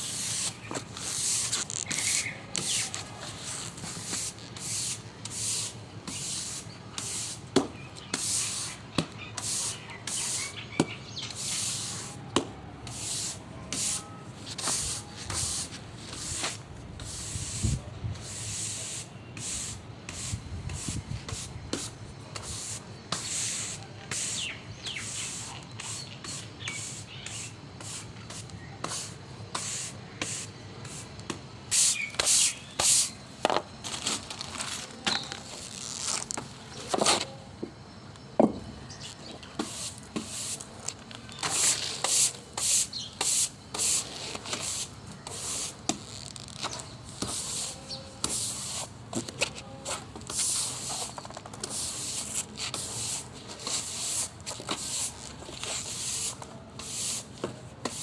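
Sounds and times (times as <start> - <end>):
broom sweeping floor: 0.0 - 37.4, 39.2 - 58.0.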